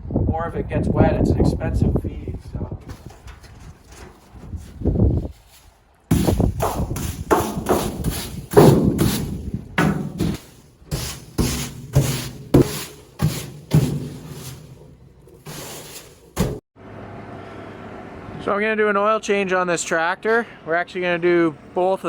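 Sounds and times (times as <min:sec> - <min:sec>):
feed being scraped with thuds: 0:02.8 - 0:16.6.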